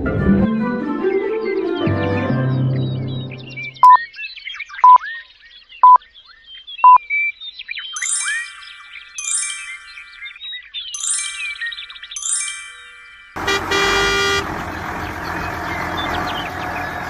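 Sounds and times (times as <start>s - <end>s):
high chiming electronic jingle: 8.0s - 10.4s, 11.0s - 13.4s
loud electronic beeps: 13.4s - 14.7s
faint chirping: 13.6s - 17.0s.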